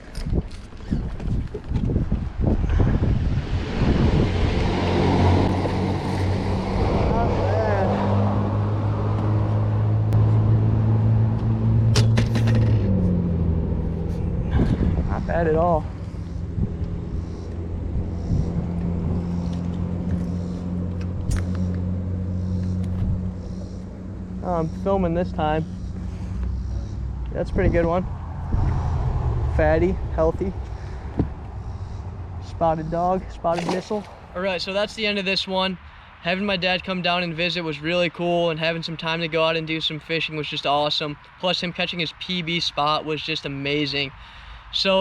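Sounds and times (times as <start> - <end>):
wind buffeting microphone: 0.0 - 10.2, 12.9 - 35.3
low motor hum: 0.0 - 34.7.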